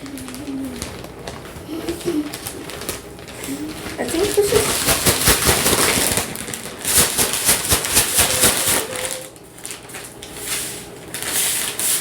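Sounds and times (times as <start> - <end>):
plastic bag of sugar shaken: 0.0 - 12.0.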